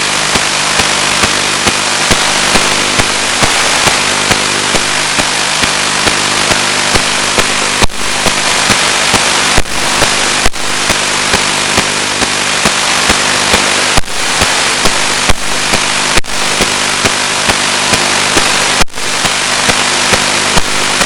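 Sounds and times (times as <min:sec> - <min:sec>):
crackling clicks: 0:00.0 - 0:21.0
static hiss: 0:00.0 - 0:21.0.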